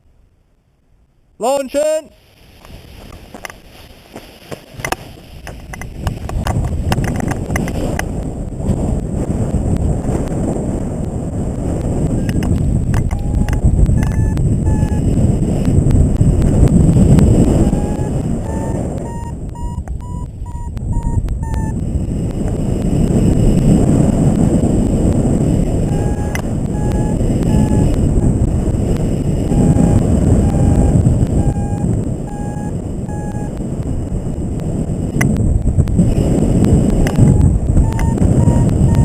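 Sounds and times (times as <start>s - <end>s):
wind noise on microphone: 1.7s - 39.0s
electronic variometer beeping: 12.0s - 15.8s, 17.0s - 22.4s, 25.1s - 35.4s, 36.0s - 39.0s.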